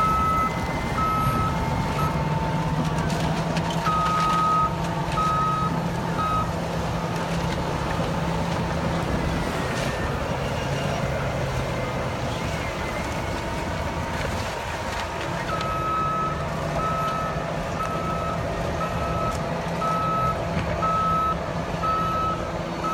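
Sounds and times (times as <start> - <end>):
reversing alarm beeping: 0.0 - 3.1, 3.8 - 7.2, 15.5 - 22.9
bulldozer diesel engine running: 0.0 - 22.9.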